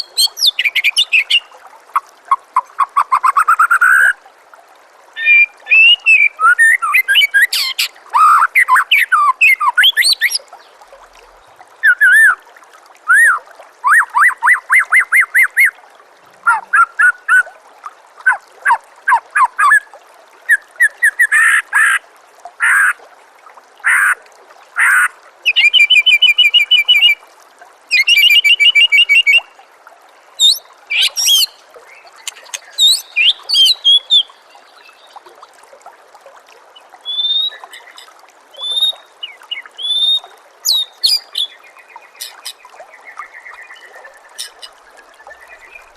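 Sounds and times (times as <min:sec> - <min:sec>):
songbird singing: 0:00.0 - 0:01.5, 0:05.2 - 0:10.8, 0:25.5 - 0:27.2, 0:27.9 - 0:29.6, 0:30.4 - 0:35.2, 0:36.8 - 0:45.9
water trickling: 0:00.0 - 0:45.9.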